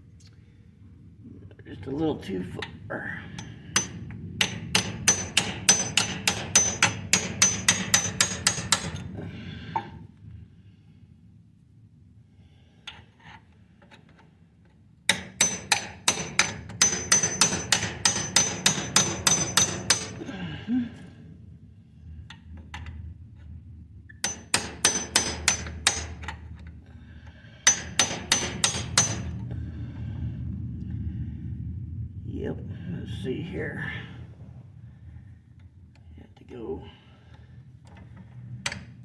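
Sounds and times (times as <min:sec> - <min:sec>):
hammer striking steel shaft: 0:03.4 - 0:09.1, 0:15.1 - 0:20.3, 0:24.2 - 0:26.4, 0:27.6 - 0:29.4.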